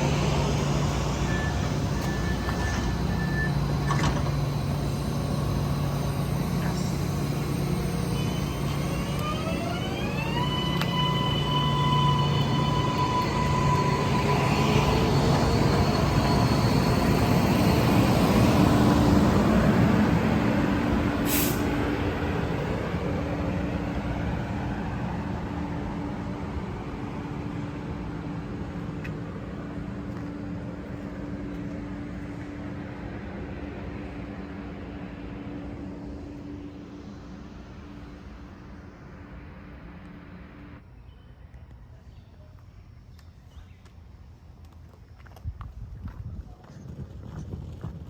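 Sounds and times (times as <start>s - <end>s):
light-rail train motor whine: 0.0s - 46.4s
train rumble: 0.0s - 48.0s
brief hiss: 21.2s - 21.8s.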